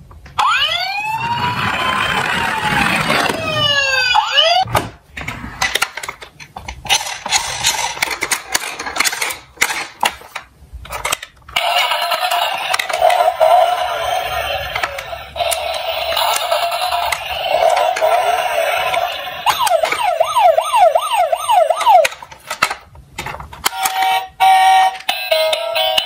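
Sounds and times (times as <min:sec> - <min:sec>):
emergency vehicle siren wailing: 0:00.4 - 0:04.7, 0:15.7 - 0:22.1
toy cars clicking and rolling: 0:01.2 - 0:03.7, 0:05.6 - 0:20.3, 0:21.6 - 0:26.0.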